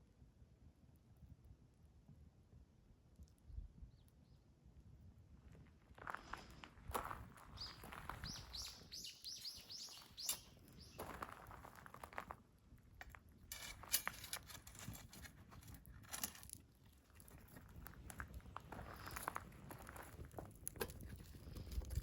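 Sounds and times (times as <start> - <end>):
faint crackles and snaps: 3.0 - 4.2, 10.0 - 22.0
small bird chirping: 7.5 - 11.2, 18.9 - 19.4.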